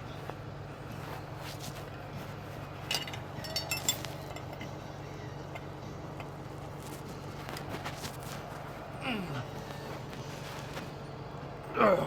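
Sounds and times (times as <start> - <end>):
metal tools clinking: 2.8 - 4.8.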